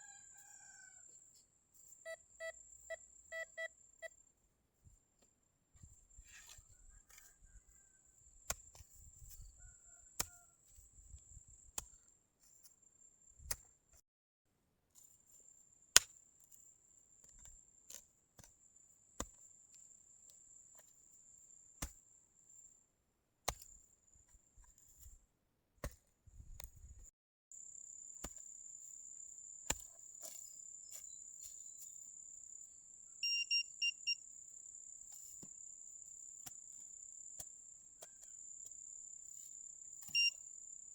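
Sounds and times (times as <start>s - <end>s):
metal detector beeps: 2.0s - 4.2s, 33.2s - 34.2s, 40.0s - 40.4s.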